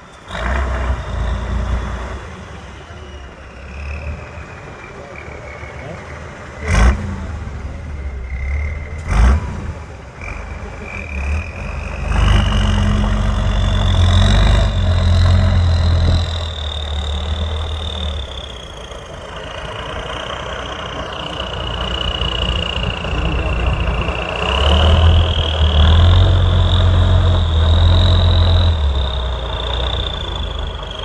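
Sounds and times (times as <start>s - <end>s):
truck engine revving: 0.0s - 31.0s
high whine: 0.8s - 31.0s.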